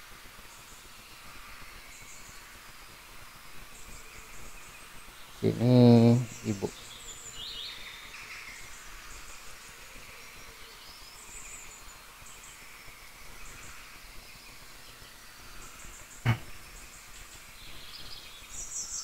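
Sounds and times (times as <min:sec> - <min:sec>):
low background hiss: 0:00.0 - 0:19.0
faint bird chirps: 0:03.6 - 0:19.0
sharp knock: 0:16.3 - 0:16.5.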